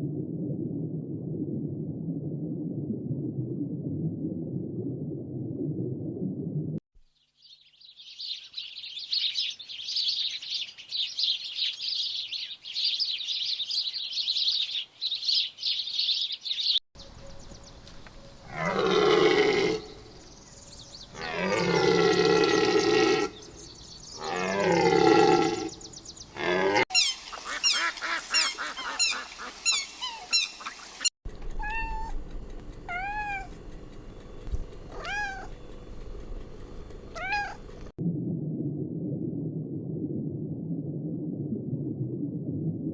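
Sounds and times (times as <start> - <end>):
long drawn-out animal calls: 18.4 - 20.0, 21.1 - 23.5, 24.2 - 30.6
rising-and-falling animal calls: 18.4 - 20.0, 21.1 - 32.1, 34.9 - 35.6, 37.2 - 37.6.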